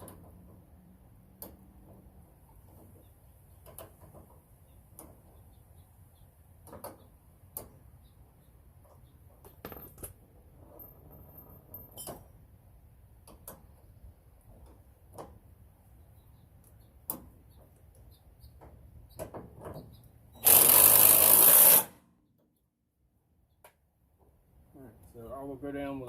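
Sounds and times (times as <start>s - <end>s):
cordless impact wrench running: 20.4s - 22.0s.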